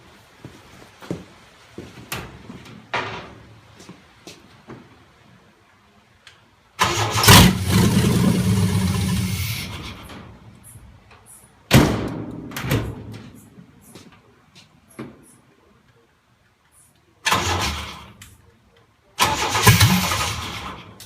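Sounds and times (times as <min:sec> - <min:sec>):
engine starting and dying: 0:06.8 - 0:10.2, 0:17.2 - 0:18.2, 0:19.2 - 0:21.0.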